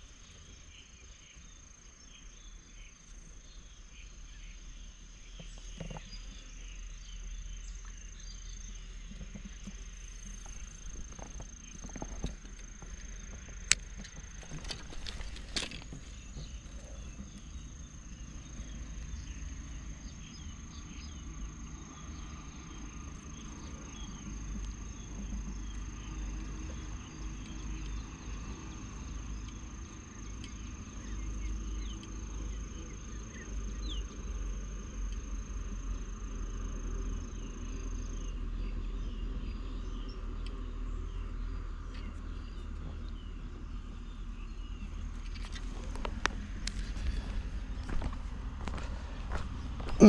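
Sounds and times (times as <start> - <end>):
sharp clicks: 13.6 - 16.6.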